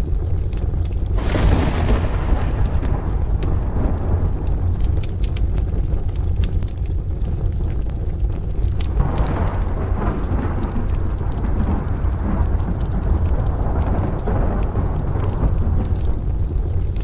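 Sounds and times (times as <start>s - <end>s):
rain falling: 0.0s - 17.0s
wood stove fire crackling: 0.0s - 17.0s
distant thunder rumbling: 1.2s - 6.3s, 8.8s - 17.0s.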